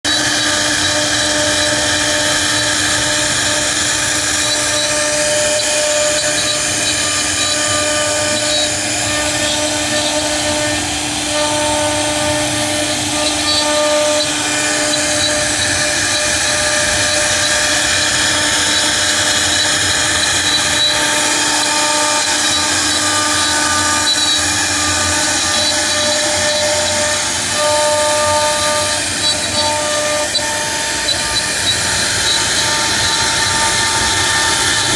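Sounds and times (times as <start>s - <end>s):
cnc router spindle whine: 0.0s - 34.9s.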